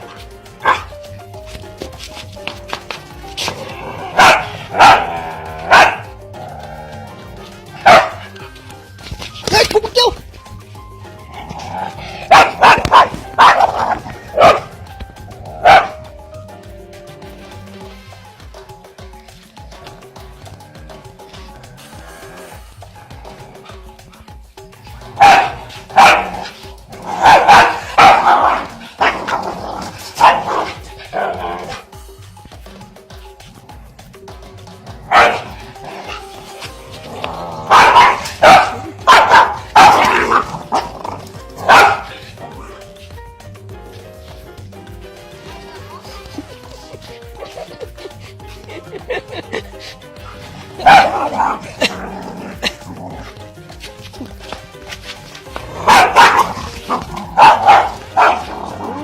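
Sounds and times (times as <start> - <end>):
dog barking: 0.0 - 1.0, 3.4 - 6.2, 7.6 - 8.5, 11.5 - 14.8, 15.6 - 16.0, 25.2 - 31.8, 35.1 - 36.3, 37.4 - 42.8, 50.3 - 53.3, 55.7 - 59.0
background music: 0.0 - 59.0.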